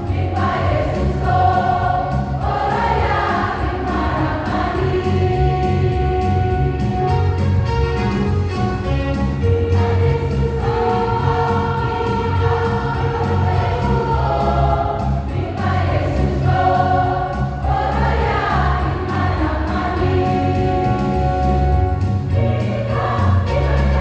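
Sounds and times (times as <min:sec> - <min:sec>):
church choir singing: 0:00.0 - 0:07.6, 0:08.7 - 0:24.0
instrumental accompaniment with bass: 0:00.0 - 0:24.0.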